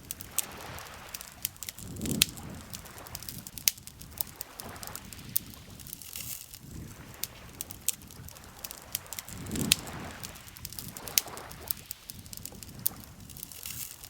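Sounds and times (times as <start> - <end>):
campfire crackling and popping: 0.0 - 14.0
soft low water wash: 0.0 - 14.0.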